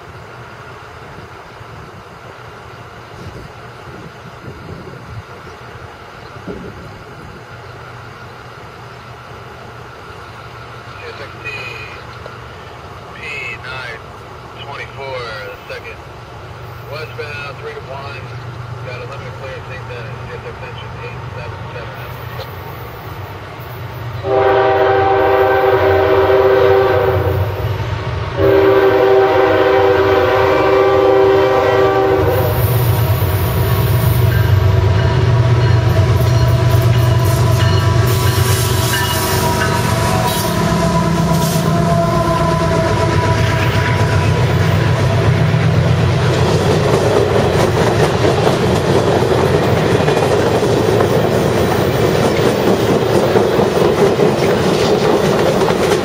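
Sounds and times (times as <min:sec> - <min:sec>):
locomotive air horn blasts: 0:24.2 - 0:27.6, 0:28.4 - 0:32.9, 0:35.0 - 0:45.2
train wheels clickety-clack: 0:42.4 - 0:56.0.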